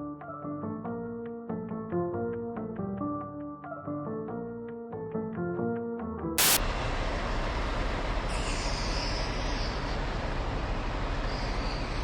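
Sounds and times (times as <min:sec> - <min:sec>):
hiss: 0:06.4 - 0:06.6, 0:08.3 - 0:10.1, 0:11.1 - 0:12.0
loud crackle: 0:06.4 - 0:06.6
truck engine rumble: 0:06.6 - 0:12.0.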